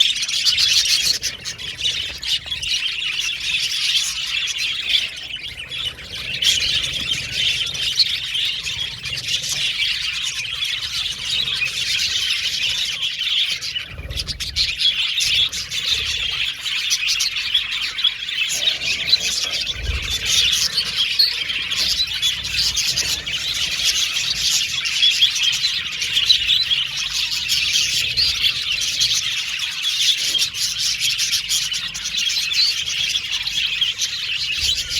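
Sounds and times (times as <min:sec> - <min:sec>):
budgerigars chattering: 0:00.0 - 0:34.9.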